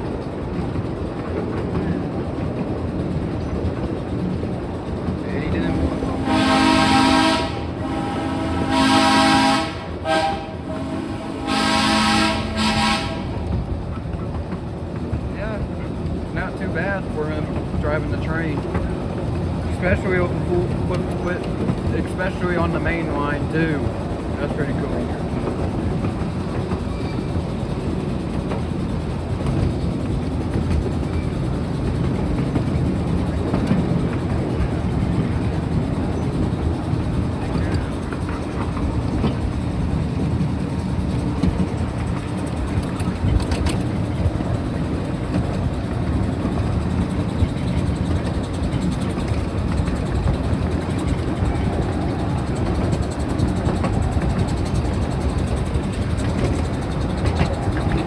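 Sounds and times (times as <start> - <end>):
miniature train rumbling on track: 0.0 - 58.0
steam whistle blasts: 6.2 - 13.3.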